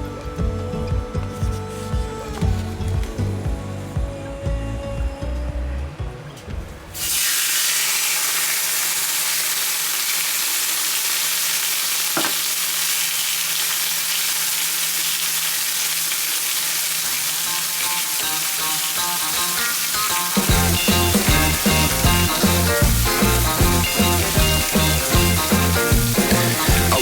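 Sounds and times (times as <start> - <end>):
steak sizzling on a griddle: 7.0 - 27.0.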